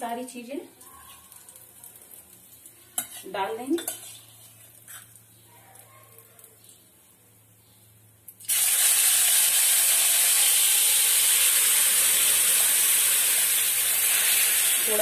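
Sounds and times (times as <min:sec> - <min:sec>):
vegetables sizzling in hot oil: 0:01.2 - 0:05.3, 0:08.4 - 0:15.0.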